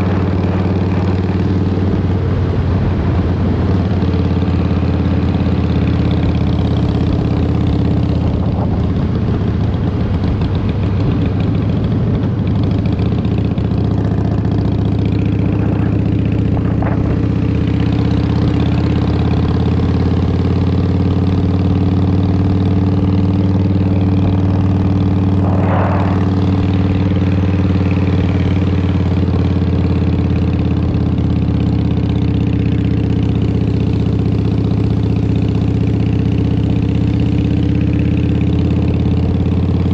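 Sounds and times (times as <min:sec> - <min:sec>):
motorcycle engine running: 0:00.0 - 0:39.9
brief rushing noises: 0:25.2 - 0:27.2.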